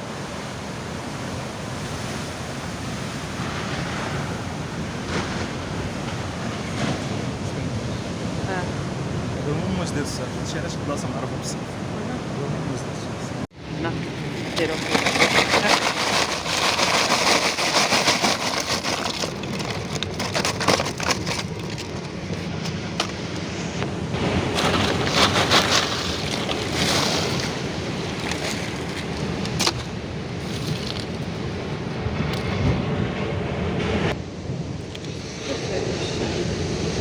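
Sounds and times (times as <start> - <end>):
ocean surf breaking: 0.0 - 37.0.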